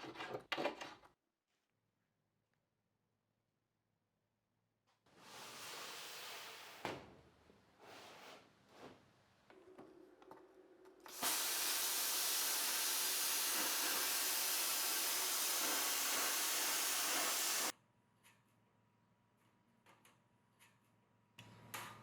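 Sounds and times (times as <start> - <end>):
plasma cutter hissing: 11.1 - 17.7.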